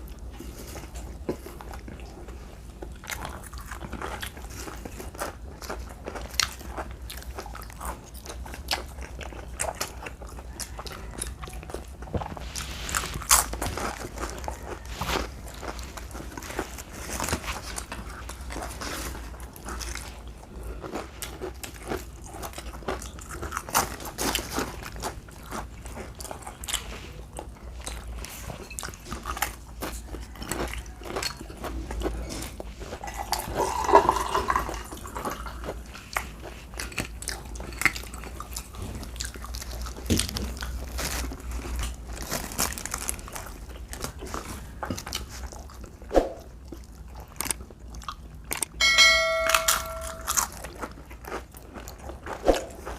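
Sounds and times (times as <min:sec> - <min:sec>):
chewing and biting: 0:00.0 - 0:48.9, 0:49.5 - 0:52.9
low steady hum: 0:00.0 - 0:52.9
wet mouth clicks and crunches: 0:45.1 - 0:48.8.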